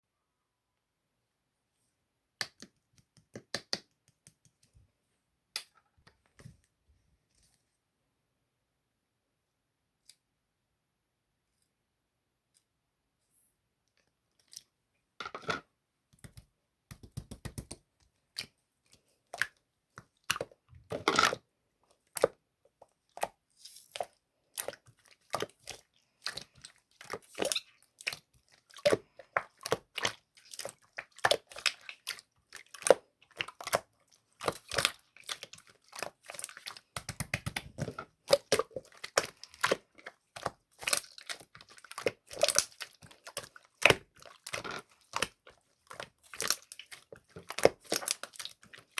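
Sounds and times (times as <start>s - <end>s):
slime popping and crackling: 34.4s - 48.9s.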